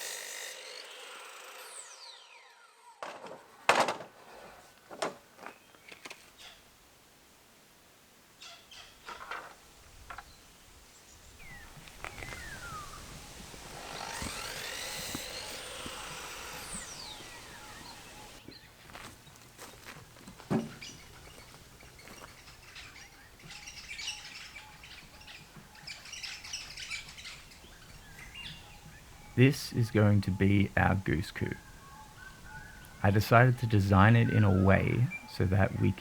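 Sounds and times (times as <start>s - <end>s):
birds chirping: 10.2s - 36.0s.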